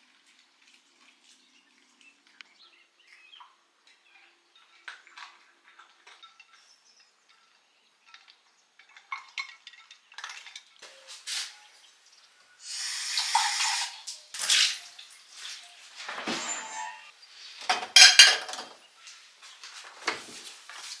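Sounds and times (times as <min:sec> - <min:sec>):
dishes and utensils clinking: 0:13.2 - 0:18.9.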